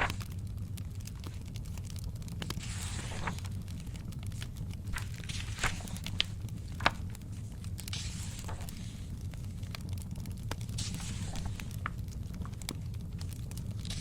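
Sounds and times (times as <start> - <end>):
paper page turning: 0.0 - 0.4, 2.4 - 9.2, 10.8 - 14.0
fire crackling: 0.0 - 14.0.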